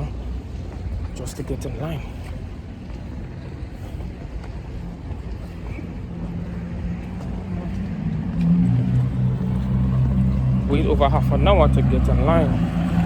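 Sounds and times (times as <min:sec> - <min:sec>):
vehicle engine approaching: 0:05.8 - 0:13.0.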